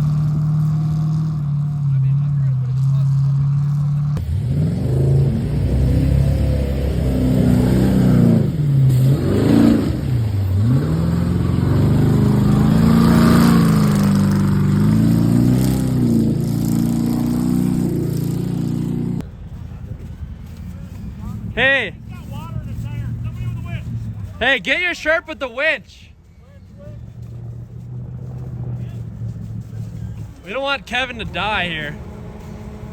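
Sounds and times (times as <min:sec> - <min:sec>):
diesel engine revving: 0:00.0 - 0:19.2, 0:26.6 - 0:32.9.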